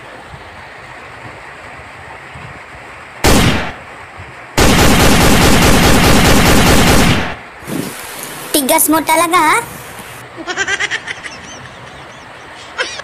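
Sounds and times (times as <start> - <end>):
loud gunshot bang: 3.2 - 3.8
rapid machine-gun fire: 3.2 - 3.8, 4.6 - 7.4.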